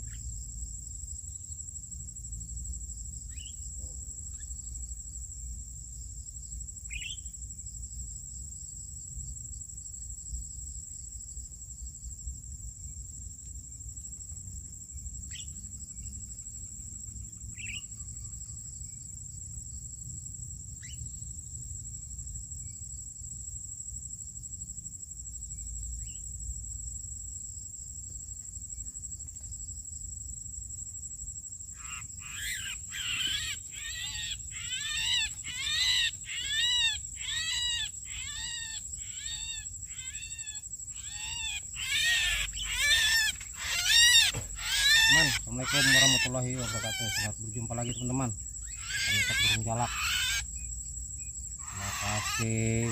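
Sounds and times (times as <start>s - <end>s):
insects droning: 0.0s - 52.9s
bird chirps: 6.9s - 7.3s, 17.6s - 18.0s, 41.0s - 50.7s, 51.6s - 52.9s
rapid bird calls: 17.6s - 17.9s, 31.7s - 50.6s, 51.6s - 52.9s.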